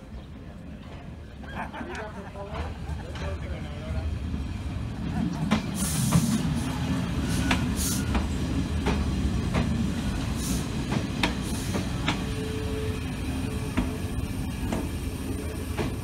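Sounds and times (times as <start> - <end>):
train rumbling past: 0.0 - 16.0
train brake squeal: 7.2 - 8.3.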